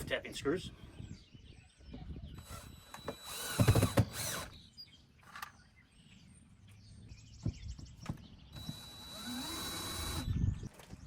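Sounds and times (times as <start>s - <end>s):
power drill driving screw: 2.4s - 4.6s, 8.6s - 10.3s.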